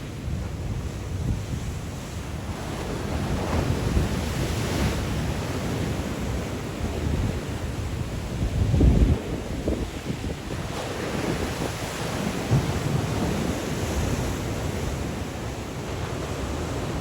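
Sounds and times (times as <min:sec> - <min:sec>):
waves breaking on shore: 0:00.0 - 0:17.0
wind buffeting microphone: 0:00.0 - 0:17.0.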